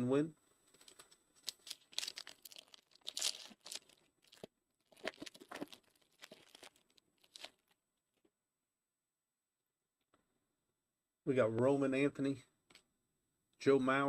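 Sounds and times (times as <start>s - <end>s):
wrapper tearing and crinkling: 0.8s - 7.7s.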